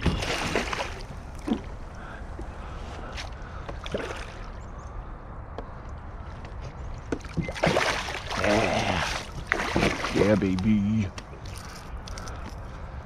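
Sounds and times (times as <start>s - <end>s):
kayak paddling on water: 0.0s - 4.6s, 5.6s - 11.7s
rush of water: 7.2s - 10.6s.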